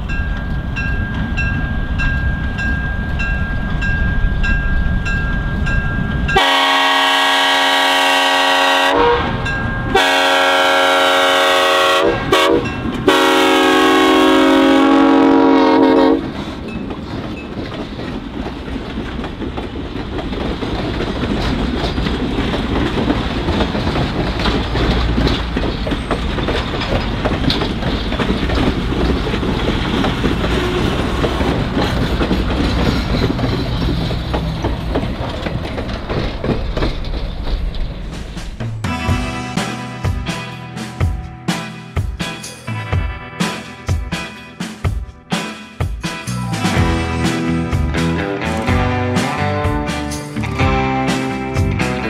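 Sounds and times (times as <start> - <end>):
train rumbling past: 0.0 - 52.0
train air horn blasts: 6.4 - 16.3
wheel clickety-clack: 16.1 - 38.8.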